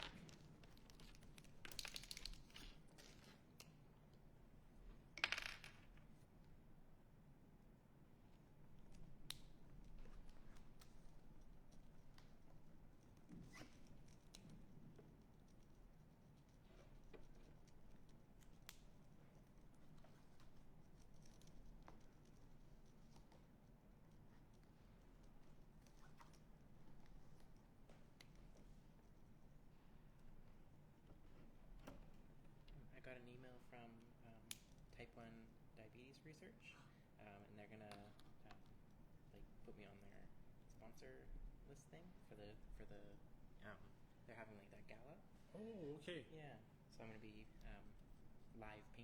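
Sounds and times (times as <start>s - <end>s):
small hard objects clicking and rattling: 0.0s - 3.2s
low room hum: 0.0s - 49.0s.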